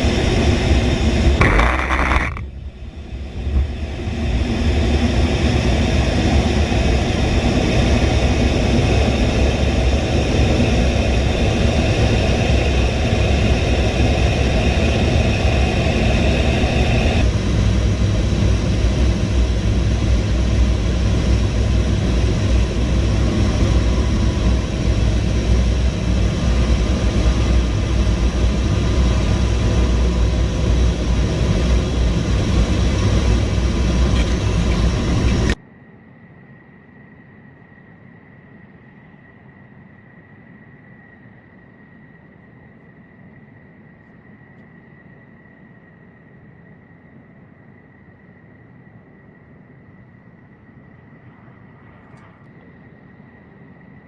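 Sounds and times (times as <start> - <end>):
loud engine rumble: 0.0 - 35.6
faint high whine: 0.0 - 54.0.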